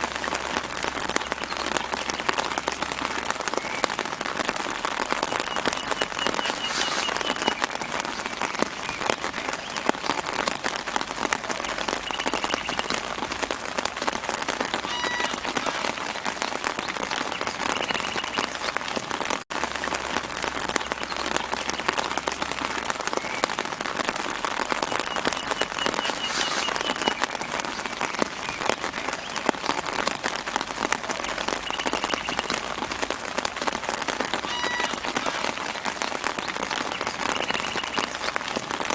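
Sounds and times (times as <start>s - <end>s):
light rain on leaves: 0.0s - 38.9s
faint bird chirps: 5.3s - 9.1s, 24.9s - 27.3s.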